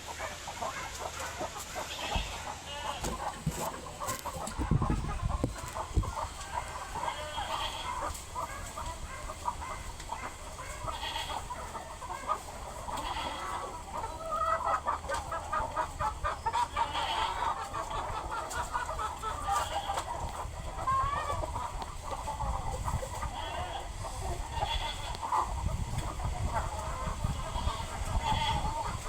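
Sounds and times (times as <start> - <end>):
chickens clucking: 0.0 - 29.0.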